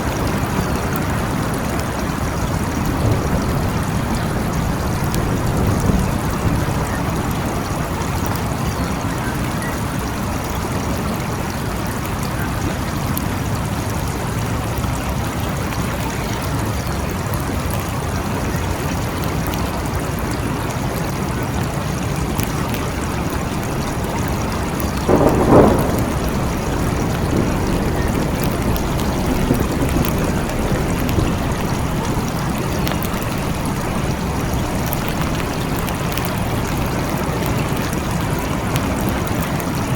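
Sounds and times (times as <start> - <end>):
steady rain falling: 0.0 - 39.9
low rumble: 22.6 - 39.2.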